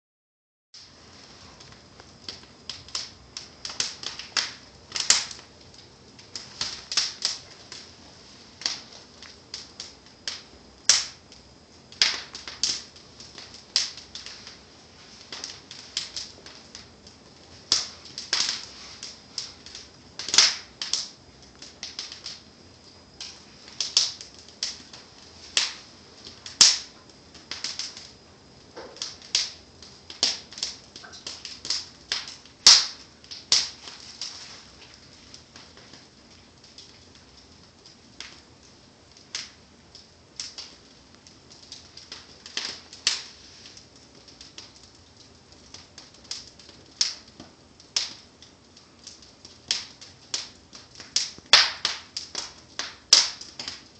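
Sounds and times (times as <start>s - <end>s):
faint steady hiss: 0.8s - 53.9s
wood fire crackling and popping: 0.8s - 53.9s.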